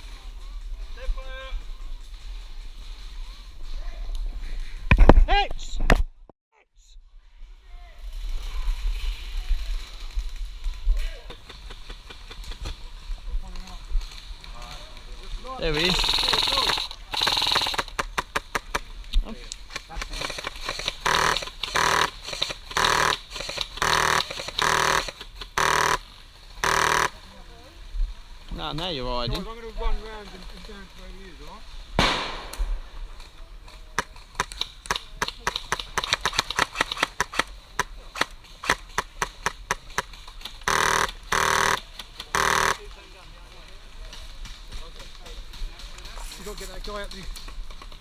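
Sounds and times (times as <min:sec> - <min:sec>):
airsoft rifle full-auto bursts: 0:15.8 - 0:18.7, 0:20.0 - 0:26.0, 0:26.6 - 0:27.1, 0:34.4 - 0:40.0, 0:40.6 - 0:42.8
sharp clicks: 0:15.8 - 0:18.9, 0:19.5 - 0:26.0, 0:33.7 - 0:42.8.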